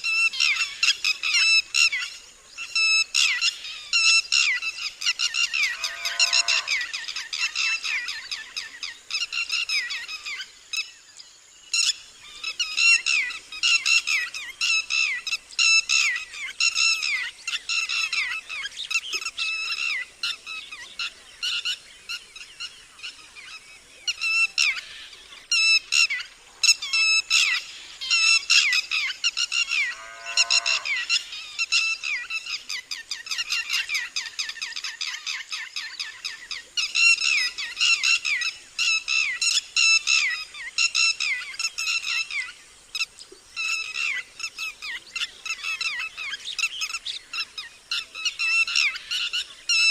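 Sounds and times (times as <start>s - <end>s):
lapwing alarm call: 2.8s - 8.6s, 24.2s - 49.9s
lower gliding bird call: 5.4s - 7.2s, 26.8s - 31.7s.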